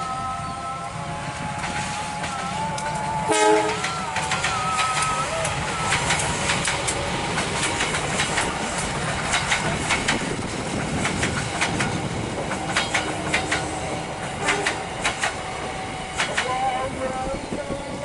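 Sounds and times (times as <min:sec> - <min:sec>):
train coaches rumbling past: 0:00.0 - 0:18.0
wheels clacking over rail joints: 0:03.7 - 0:16.6.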